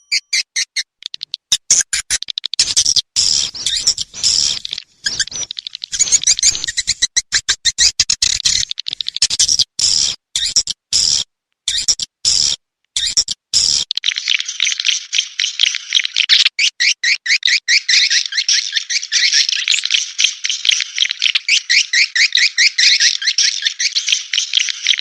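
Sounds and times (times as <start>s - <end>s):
swiftlet chirps and twittering: 0.0s - 10.6s.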